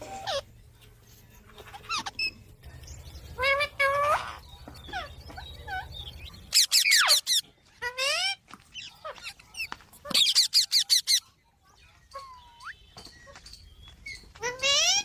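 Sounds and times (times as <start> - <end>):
parakeets screeching: 0.0 - 0.5, 1.6 - 2.5, 3.3 - 11.4, 14.0 - 15.0.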